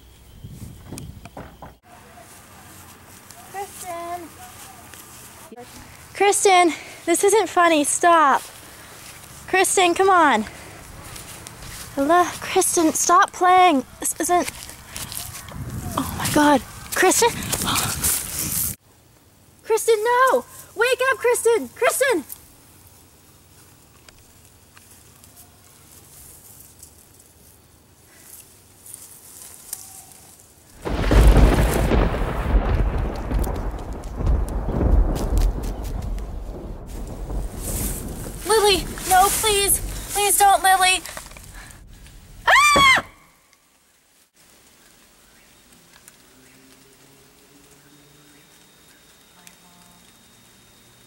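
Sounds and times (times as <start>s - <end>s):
faint steady hiss: 0.0s - 33.8s, 36.9s - 51.0s
small clicks and ticks: 23.6s - 25.4s, 45.6s - 47.9s
girl screaming: 42.5s - 43.4s.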